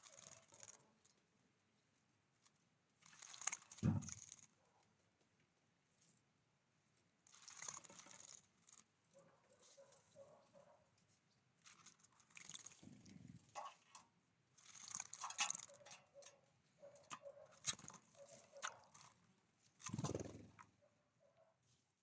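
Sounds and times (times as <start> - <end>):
birds pecking seed: 0.0 - 1.2, 3.0 - 4.6, 7.3 - 10.7, 11.6 - 20.8.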